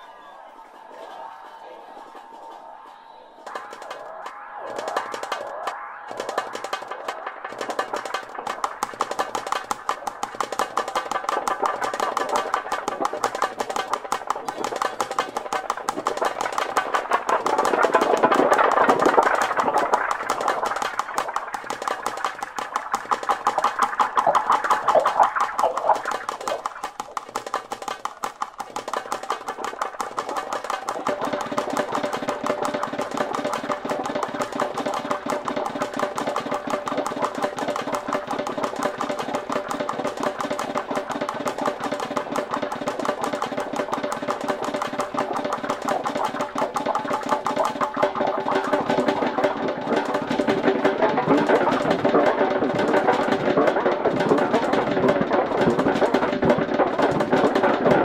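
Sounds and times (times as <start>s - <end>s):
low synth layer: 0.0s - 26.8s.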